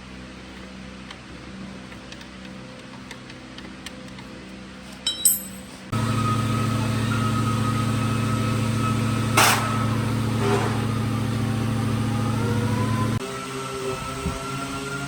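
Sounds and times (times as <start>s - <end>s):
machine motor humming: 5.9s - 13.2s.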